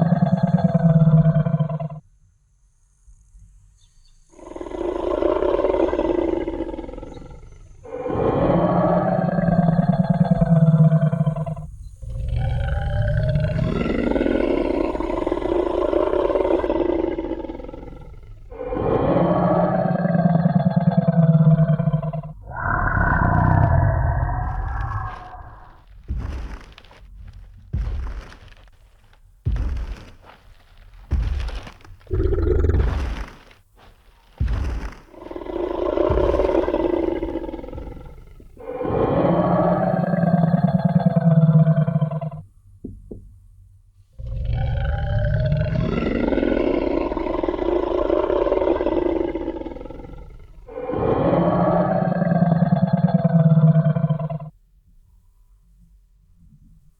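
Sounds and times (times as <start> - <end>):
deep dinosaur roar: 0.0 - 2.0, 4.4 - 42.4, 44.2 - 54.6
heavy booming footsteps: 12.1 - 19.6, 21.6 - 39.1.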